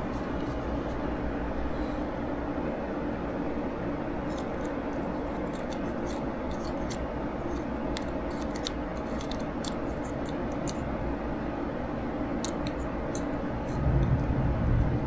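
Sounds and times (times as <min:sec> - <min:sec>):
steady low hum: 0:00.0 - 0:15.0
small parts and tools clicking: 0:04.3 - 0:10.9, 0:12.4 - 0:13.4.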